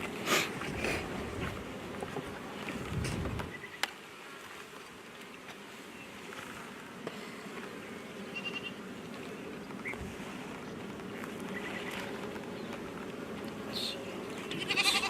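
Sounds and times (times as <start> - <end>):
bees buzzing: 5.6 - 15.0.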